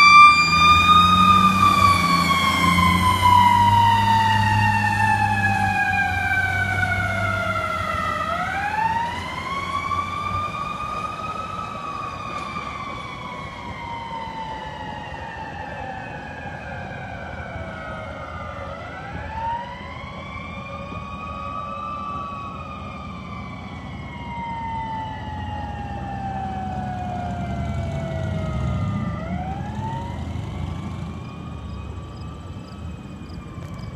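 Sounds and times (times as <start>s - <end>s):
fire engine siren wailing: 0.0s - 33.9s
diesel engine rumbling: 22.0s - 33.9s.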